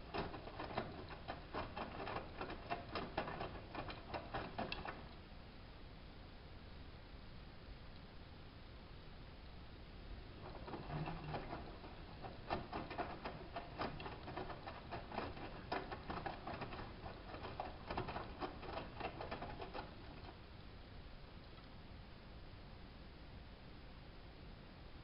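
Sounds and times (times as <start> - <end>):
washing machine drum turning: 0.0 - 5.1, 10.4 - 20.4.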